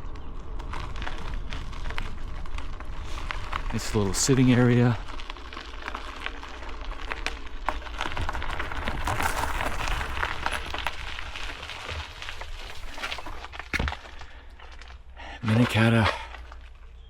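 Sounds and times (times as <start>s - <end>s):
wind rumble on microphone: 0.0s - 13.5s
gravel crunching: 0.0s - 17.0s.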